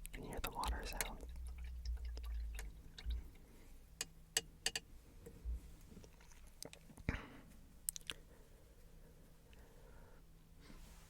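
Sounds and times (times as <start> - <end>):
light clicks and taps: 0.0 - 1.4.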